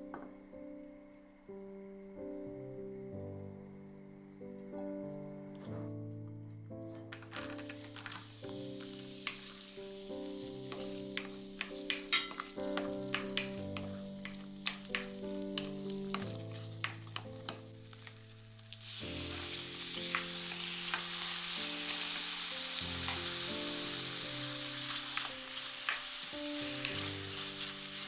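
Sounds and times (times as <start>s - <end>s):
background music with held notes: 0.0s - 28.0s
food sizzling in oil: 7.2s - 28.0s.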